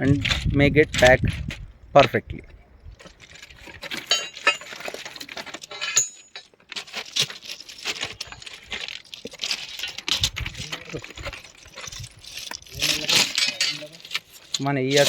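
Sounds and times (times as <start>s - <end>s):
steel tools clinking on rail and stones: 3.0s - 15.0s.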